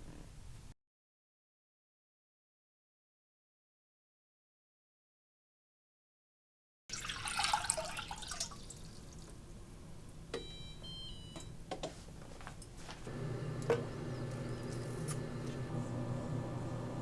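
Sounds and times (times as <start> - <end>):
water running: 6.9 - 9.4, 13.1 - 17.0
electronic appliance beeps: 10.3 - 11.6, 13.1 - 17.0
low steady hum: 12.6 - 17.0
appliance clicks: 13.1 - 17.0.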